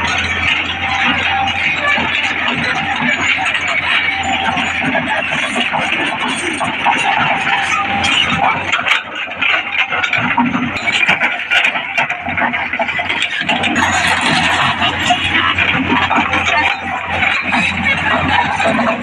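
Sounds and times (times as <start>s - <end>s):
excavator diesel engine running: 0.0s - 19.0s
knocks of machine moving soil: 0.0s - 19.0s.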